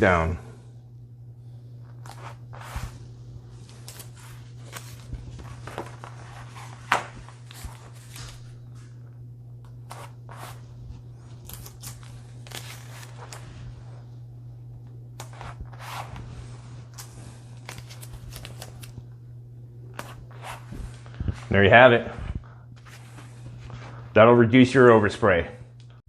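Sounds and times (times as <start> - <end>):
steady low hum: 0.0 - 26.0
tape being torn: 11.4 - 13.4.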